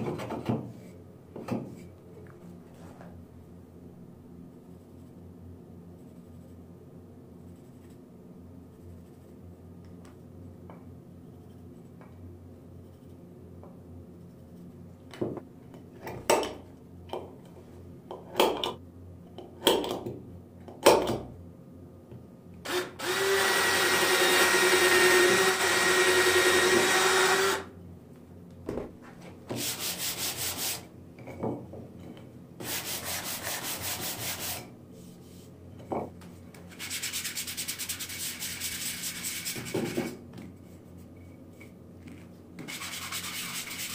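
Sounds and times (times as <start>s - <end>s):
cordless drill boring into wood: 22.7s - 27.7s
sandpaper rubbing on wood: 29.6s - 30.9s, 32.6s - 34.6s, 36.7s - 40.0s, 42.7s - 43.9s.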